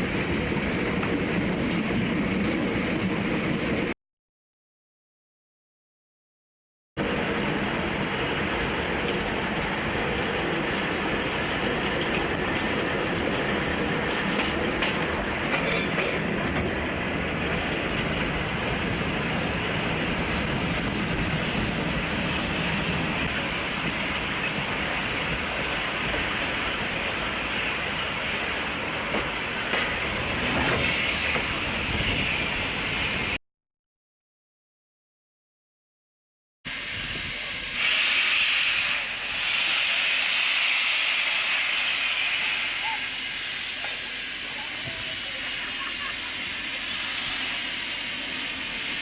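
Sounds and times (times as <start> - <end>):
train running by: 0.0 - 4.0, 7.0 - 33.4, 36.7 - 49.0
steam locomotive venting steam: 7.0 - 33.4, 36.7 - 49.0
wind on microphone: 16.3 - 26.9.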